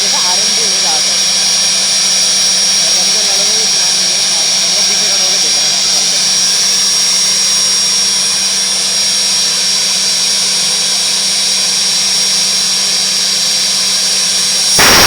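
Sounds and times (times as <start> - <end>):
helicopter engine whine: 0.0 - 15.0
low hum: 14.8 - 15.0
rushing noise: 14.8 - 15.0.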